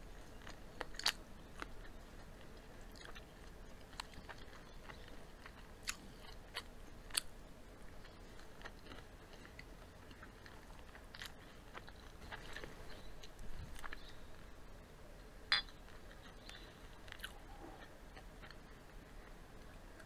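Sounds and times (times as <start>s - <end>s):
chewing fried chicken: 0.0s - 14.6s, 15.7s - 20.0s
mouth clicks: 15.5s - 18.6s.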